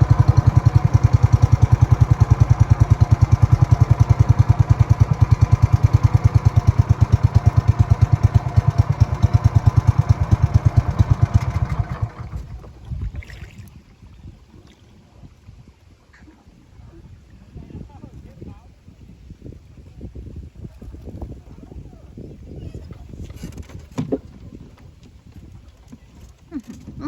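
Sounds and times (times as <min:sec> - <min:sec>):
small engine running: 0:00.0 - 0:12.8.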